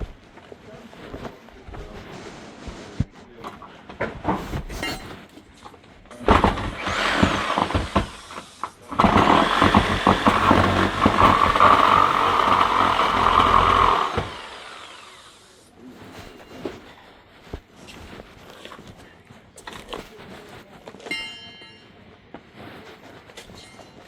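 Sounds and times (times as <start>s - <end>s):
power saw cutting timber: 6.1s - 15.8s.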